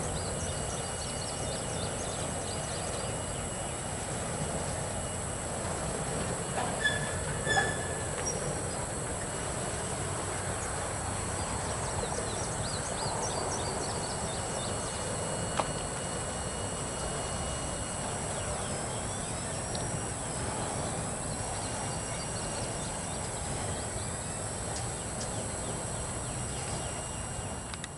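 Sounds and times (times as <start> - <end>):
freight train rumbling on rails: 0.0 - 27.9
high wheel squeals: 0.3 - 9.5.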